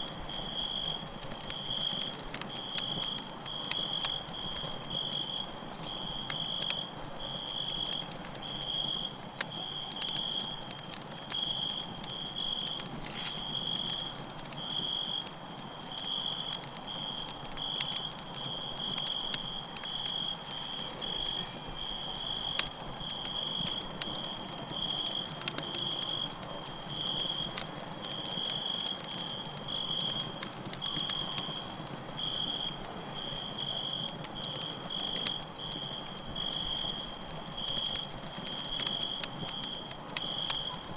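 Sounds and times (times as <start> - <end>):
burning wood popping: 0.0 - 40.9
campfire crackling: 0.0 - 40.9
crickets chirping: 0.0 - 40.9.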